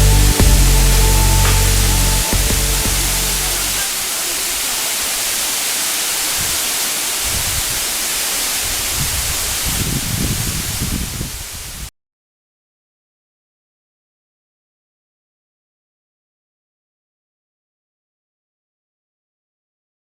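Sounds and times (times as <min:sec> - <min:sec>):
low rumble: 0:00.0 - 0:03.8
waterfall rushing water: 0:00.0 - 0:11.9.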